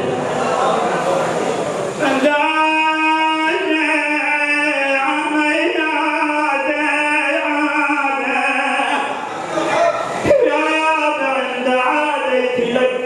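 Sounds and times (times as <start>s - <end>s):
man chanting a long note: 2.0s - 9.2s, 9.8s - 13.0s.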